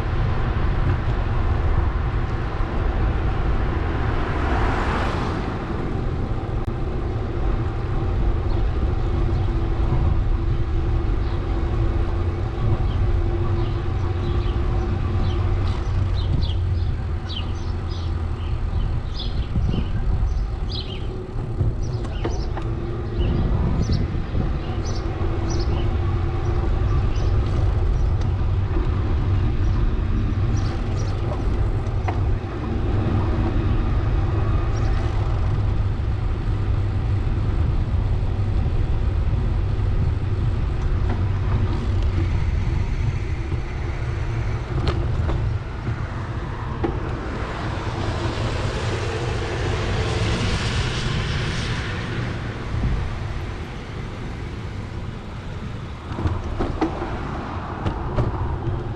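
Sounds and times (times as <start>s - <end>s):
car passing: 0.0s - 58.9s
wind on microphone: 0.0s - 58.9s
bicycle rolling: 5.0s - 50.4s.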